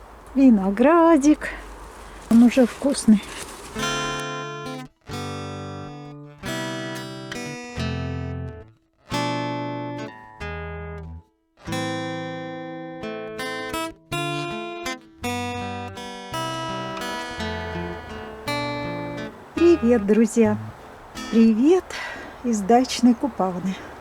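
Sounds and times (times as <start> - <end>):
acoustic guitar chords: 3.9 - 21.6.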